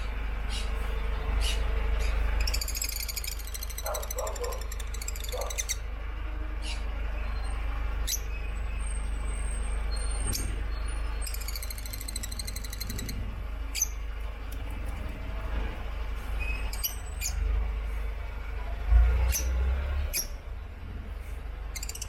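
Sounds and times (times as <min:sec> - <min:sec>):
steady low hum: 0:00.0 - 0:22.0
lovebirds chattering: 0:00.5 - 0:05.9, 0:09.9 - 0:15.4.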